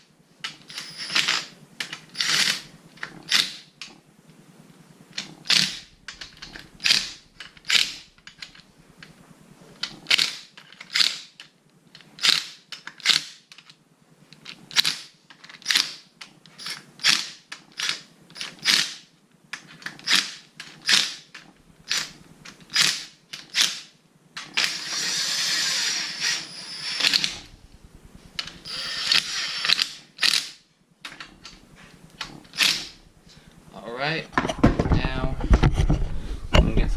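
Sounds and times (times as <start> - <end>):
impact wrench running: 5.2 - 8.6, 24.4 - 30.6, 31.2 - 33.3
tool rasping bursts: 24.4 - 27.6, 28.4 - 30.6, 32.5 - 33.0.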